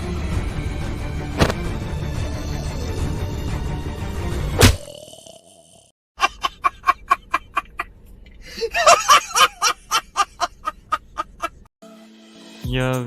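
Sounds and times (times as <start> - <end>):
cackling comic sound effect: 6.2 - 7.8.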